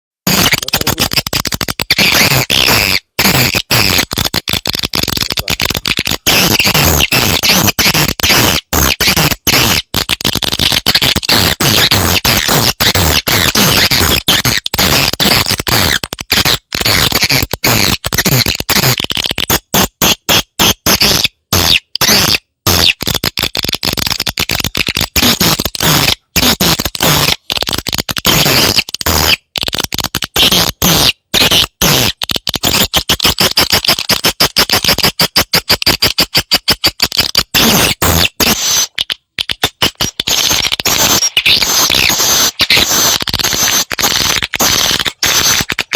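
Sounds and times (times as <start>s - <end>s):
swiftlets twittering: 0.3s - 19.0s, 37.0s - 45.9s.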